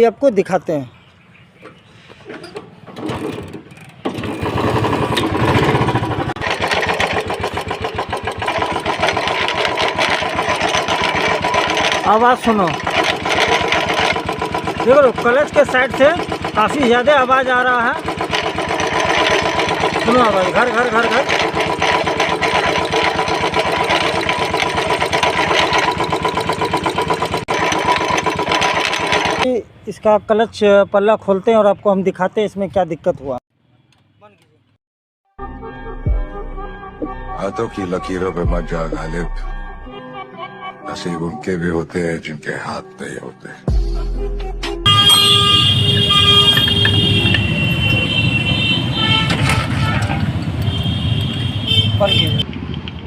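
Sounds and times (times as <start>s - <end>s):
electric starter cranking: 2.6s - 29.5s, 45.0s - 49.9s
motorcycle engine running: 3.7s - 29.4s, 44.9s - 53.0s.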